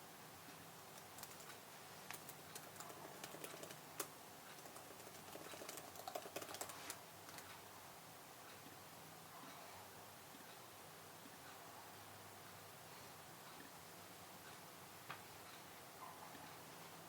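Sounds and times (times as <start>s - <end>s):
typing on computer keyboard: 1.0s - 7.5s.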